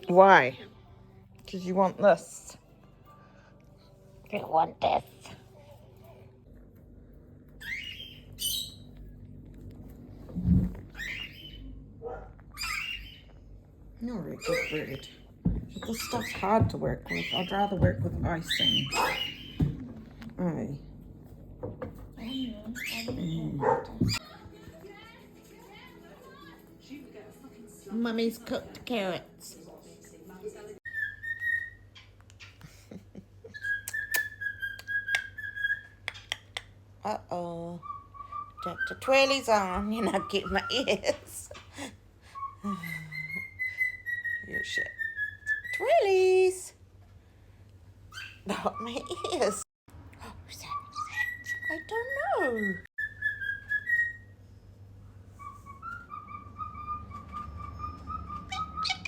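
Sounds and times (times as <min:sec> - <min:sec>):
cockatoo whistling: 0:55.4 - 0:59.0.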